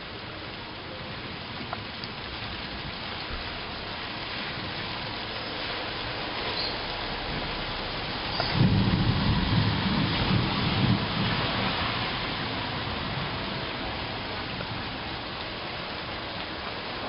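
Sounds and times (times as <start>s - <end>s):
heavy rain falling: 0.0s - 17.0s
raindrop ticks: 1.4s - 10.6s.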